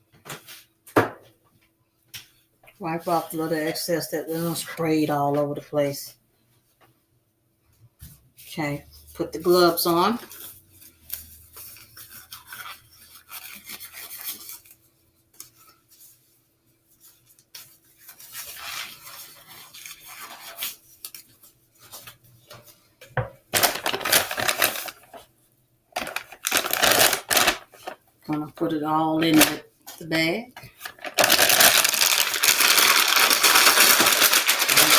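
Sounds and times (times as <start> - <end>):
plastic rustling and crinkling: 9.7 - 34.9.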